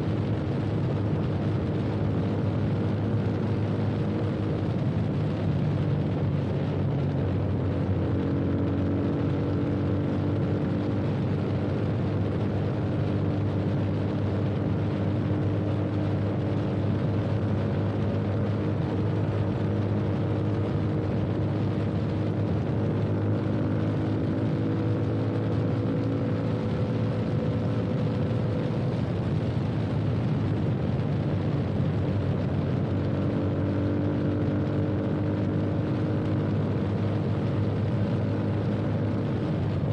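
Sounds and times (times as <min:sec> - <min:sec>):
motorcycle engine running: 0:00.0 - 0:39.9
steady rush of noise: 0:00.0 - 0:39.9.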